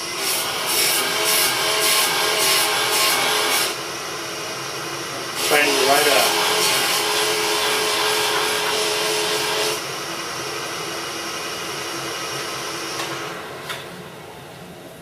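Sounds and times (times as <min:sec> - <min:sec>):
belt grinder motor whir: 0:00.0 - 0:03.8, 0:05.4 - 0:09.8.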